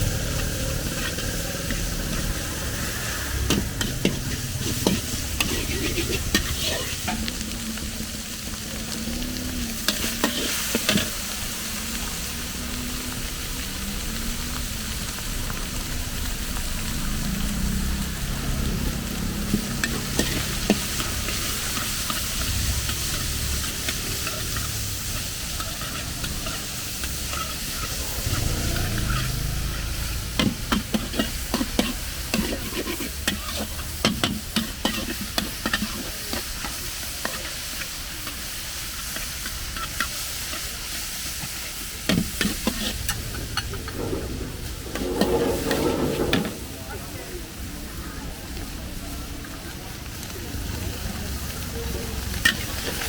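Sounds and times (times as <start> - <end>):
metal spatula scraping a wok: 0.0 - 7.6, 9.7 - 11.4, 19.4 - 47.0
food sizzling in a wok: 0.0 - 53.0.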